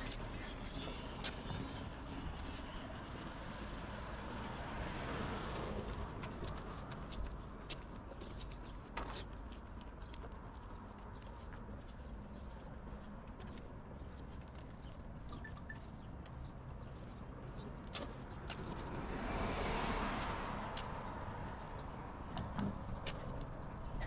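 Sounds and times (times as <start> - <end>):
car passing: 3.3 - 7.1, 18.4 - 23.9.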